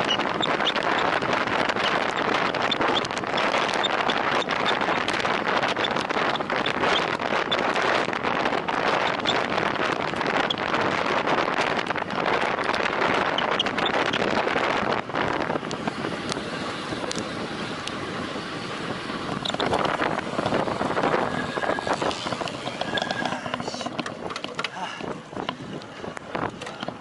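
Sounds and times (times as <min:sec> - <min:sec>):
bicycle tyre and road noise: 0:00.0 - 0:27.0
wind rushing over microphone: 0:00.0 - 0:27.0.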